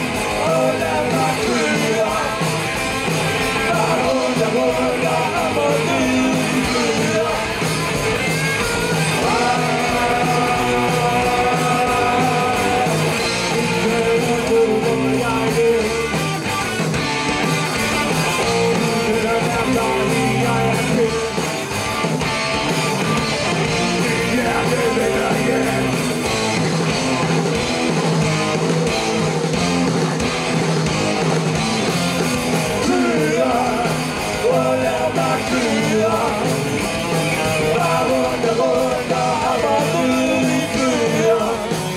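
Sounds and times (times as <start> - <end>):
electric guitar: 0.0 - 41.9
rock band playing: 0.0 - 41.9
person singing: 0.2 - 2.5, 3.6 - 7.6, 8.3 - 16.1, 18.4 - 21.5, 23.8 - 26.1, 32.7 - 41.9.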